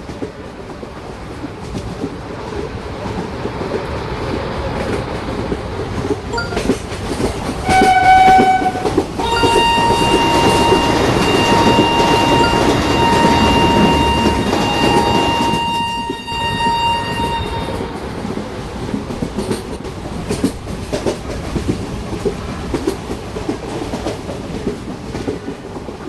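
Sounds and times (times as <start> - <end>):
electric train rumble: 0.0 - 26.0
train horn blast: 7.6 - 18.0
higher pitched train horn: 7.6 - 18.2.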